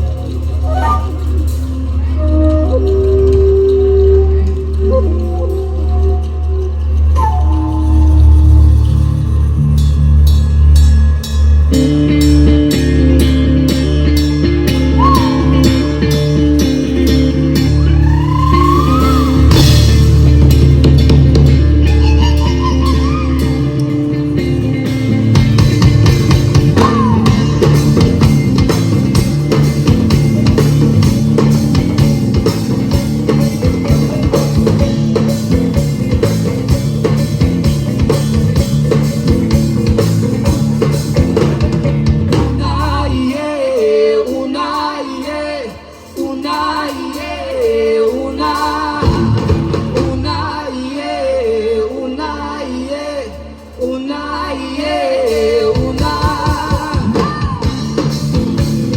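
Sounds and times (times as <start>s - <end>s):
rock band music: 0.0s - 44.2s, 55.4s - 58.9s
person singing: 21.8s - 24.6s, 26.7s - 27.8s, 42.3s - 58.3s.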